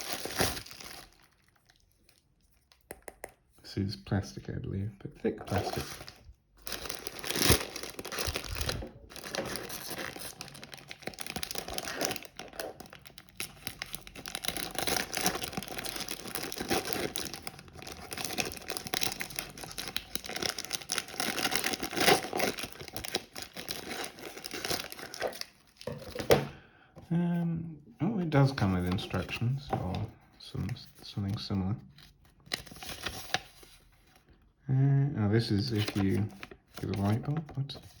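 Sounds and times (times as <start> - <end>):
plastic packaging crinkling: 0.0 - 2.7, 5.4 - 26.4.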